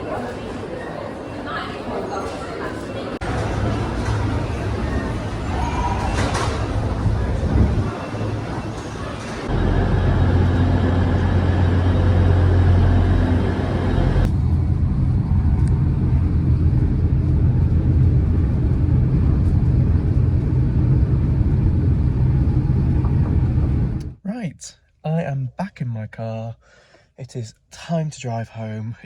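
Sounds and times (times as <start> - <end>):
low hum: 3.2 - 24.2
vehicle rumble: 3.2 - 24.2.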